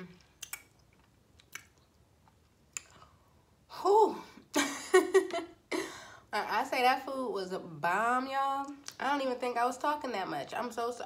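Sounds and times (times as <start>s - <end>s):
wet mouth clicks: 0.4s - 2.0s, 2.7s - 3.1s
woman's voice: 3.7s - 4.4s, 6.3s - 11.0s.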